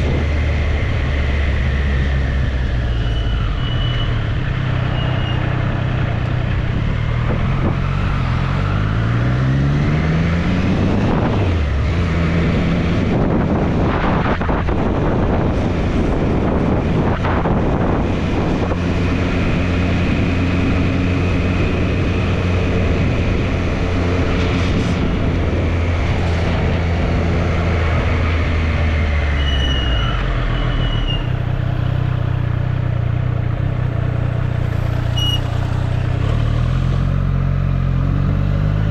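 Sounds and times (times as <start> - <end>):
wind rush: 10.1 - 29.0
motorcycle engine accelerating: 31.4 - 38.9.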